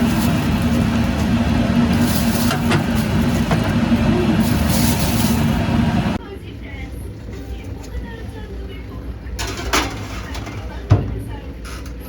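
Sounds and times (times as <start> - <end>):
vehicle engine humming: 0.0 - 6.2.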